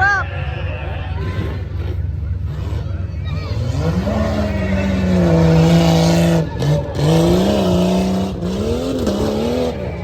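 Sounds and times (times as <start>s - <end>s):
truck engine revving: 0.3s - 10.0s.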